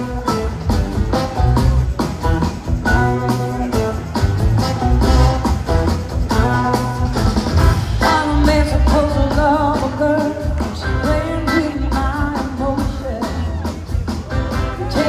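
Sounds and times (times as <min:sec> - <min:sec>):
blues-rock band playing: 0:00.0 - 0:15.0
person singing: 0:07.8 - 0:15.0.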